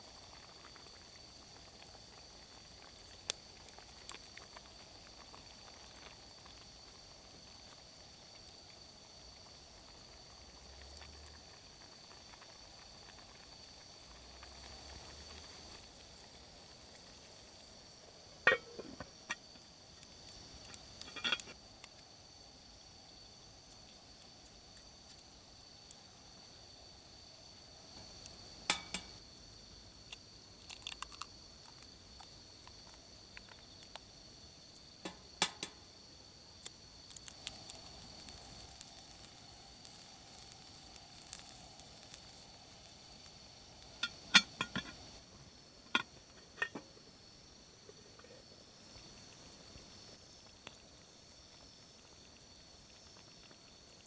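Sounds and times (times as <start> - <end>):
metal utensils clinking on pots: 28.7 - 29.1.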